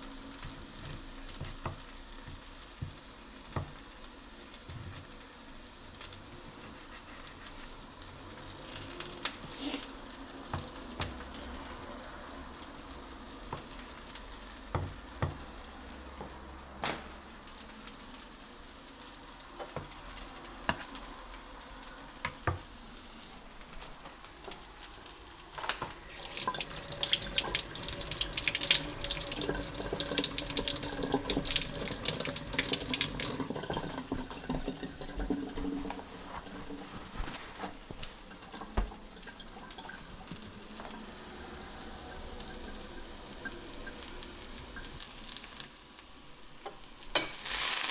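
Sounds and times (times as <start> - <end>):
water running into sink: 25.8 - 45.0.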